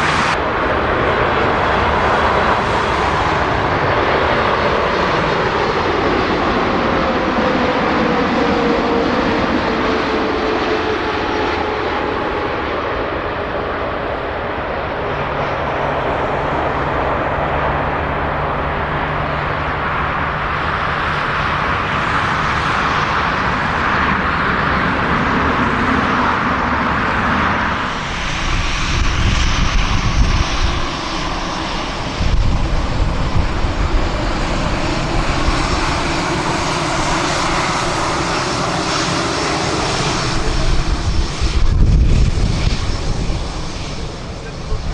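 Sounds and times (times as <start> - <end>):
jet engines roaring: 0.0 - 44.9.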